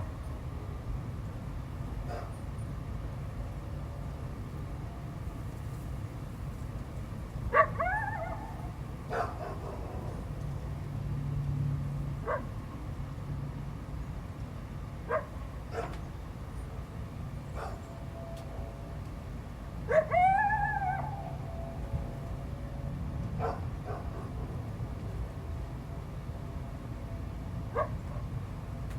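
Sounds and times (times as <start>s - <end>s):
coyote howling: 7.5s - 8.8s, 19.9s - 21.8s
dog barking: 7.5s - 10.1s, 12.2s - 12.5s, 15.1s - 16.0s, 17.6s - 17.8s, 19.9s - 20.4s, 23.4s - 24.4s, 27.7s - 28.0s.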